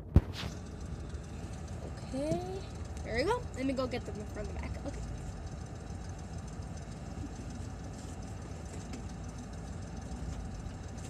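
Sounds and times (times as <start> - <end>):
car engine idling: 0.0 - 11.0
faint rustles: 7.1 - 11.0.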